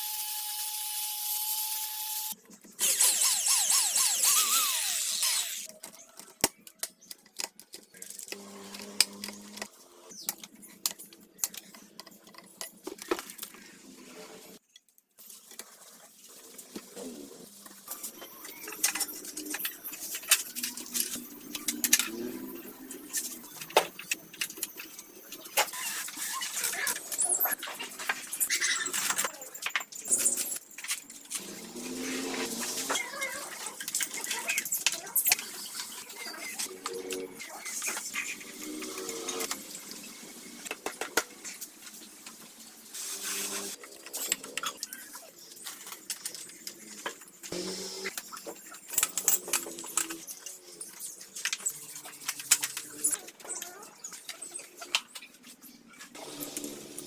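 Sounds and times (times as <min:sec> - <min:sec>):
hand tools clicking and tapping: 0:02.8 - 0:13.4, 0:17.9 - 0:26.0
small metal parts clinking: 0:17.7 - 0:31.6, 0:48.1 - 0:55.3.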